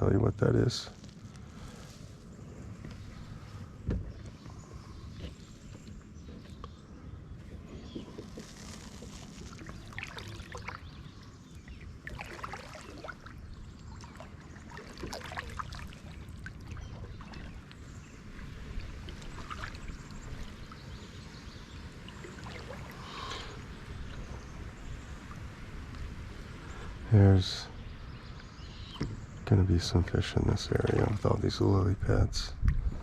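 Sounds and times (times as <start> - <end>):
kayak paddle dipping in water: 1.0 - 26.6, 30.7 - 31.4
water dripping off paddle: 8.0 - 24.4
steady low rumble: 29.4 - 33.0.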